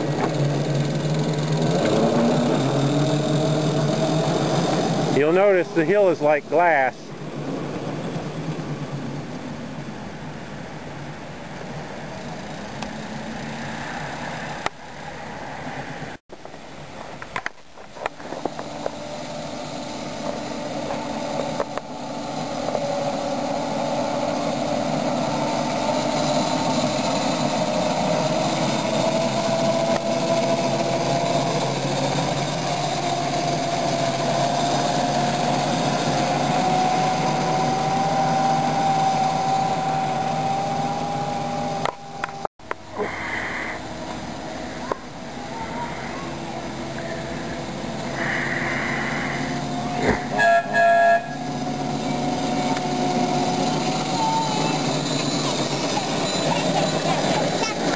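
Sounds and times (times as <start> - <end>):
miniature train running on track: 0.0 - 9.5, 17.4 - 57.9
rising mechanical whine: 0.0 - 16.2, 17.7 - 57.9.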